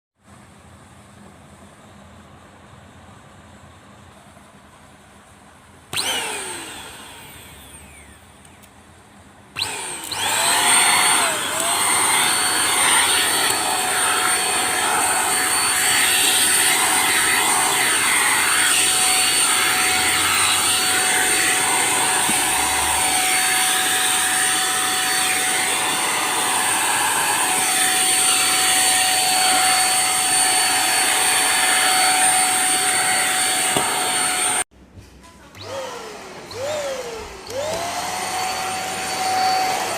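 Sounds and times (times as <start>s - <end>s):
handheld vacuum cleaner running: 5.9s - 8.5s, 9.6s - 34.7s, 35.6s - 39.9s.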